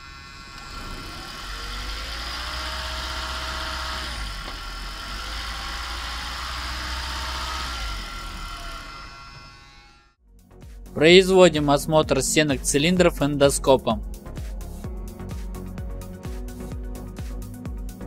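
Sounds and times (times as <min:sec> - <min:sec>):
car engine humming: 0:00.0 - 0:10.1
faint rising whine: 0:00.0 - 0:10.2.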